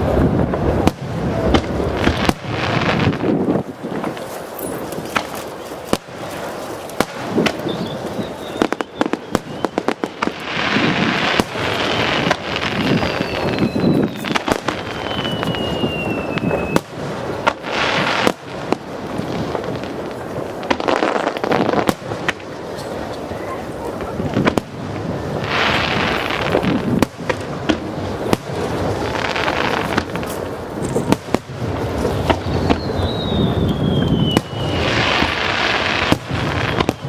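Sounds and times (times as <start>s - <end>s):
fireworks bangs and crackles: 0.0s - 37.0s
firework falling whistle: 7.4s - 17.0s, 32.0s - 37.0s.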